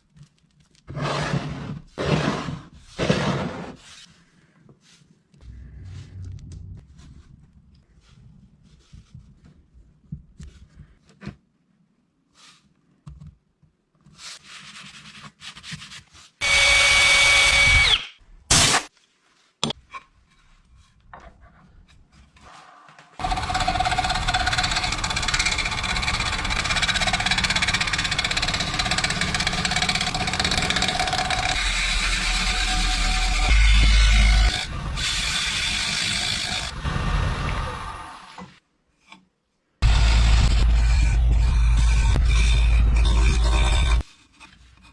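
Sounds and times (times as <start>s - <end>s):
power tool working wood: 16.4s - 18.1s, 23.2s - 38.5s, 39.8s - 44.0s.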